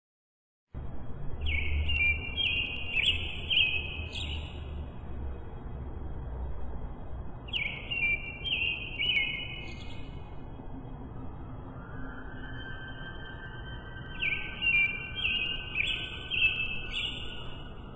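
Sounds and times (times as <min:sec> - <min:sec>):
faint low rumble: 0:00.8 - 0:08.5, 0:09.3 - 0:14.6
songbird singing whistled notes: 0:01.4 - 0:04.7, 0:07.5 - 0:10.4, 0:11.8 - 0:17.9.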